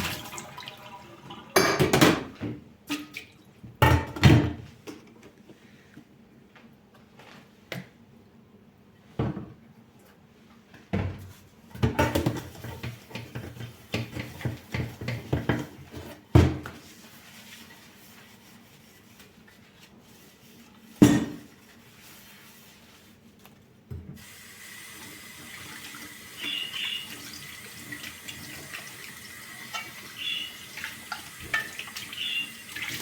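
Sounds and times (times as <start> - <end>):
dishes and utensils clattering: 1.6 - 2.4, 31.4 - 32.1.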